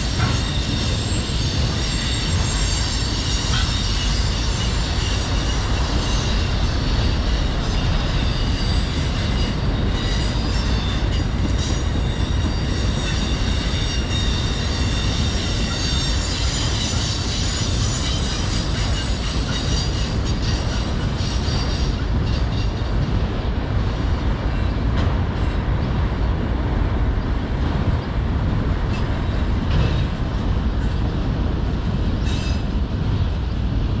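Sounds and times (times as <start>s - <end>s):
high wheel squeal: 0.0s - 22.9s
train wheels rumbling: 0.0s - 34.0s.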